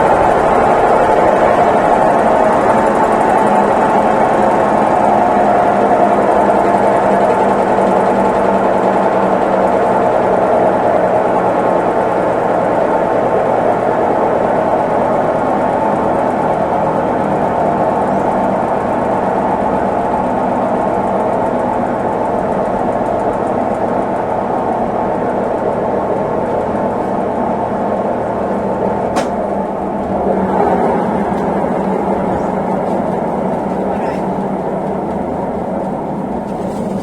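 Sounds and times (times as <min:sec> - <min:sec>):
washing machine churning: 0:00.0 - 0:37.0
sharp click: 0:29.2 - 0:29.4.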